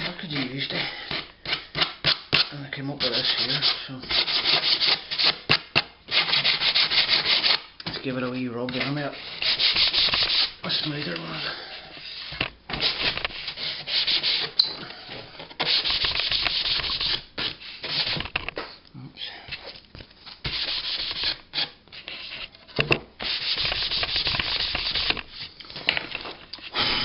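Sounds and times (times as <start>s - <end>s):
sandpaper rubbing glass edge: 9.2s - 11.4s, 12.1s - 14.6s, 15.6s - 18.2s, 20.5s - 22.3s, 23.2s - 25.2s.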